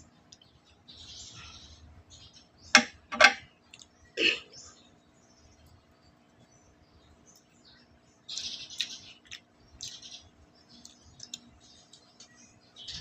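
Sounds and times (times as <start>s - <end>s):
person chewing with wet smacks: 8.3s - 10.0s, 10.7s - 12.4s.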